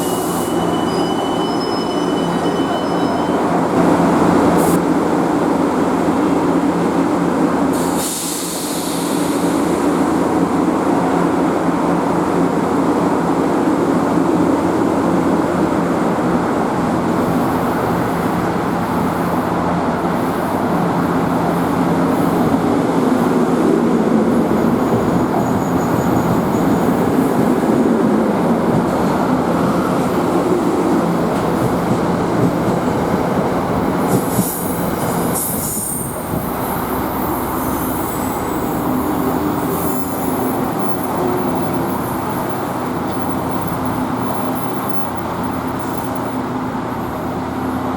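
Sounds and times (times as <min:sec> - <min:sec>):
wheels rumbling on rail: 0:00.0 - 0:47.9
electric train passing: 0:14.2 - 0:47.9
high-pitched wheel squeal: 0:25.1 - 0:27.0.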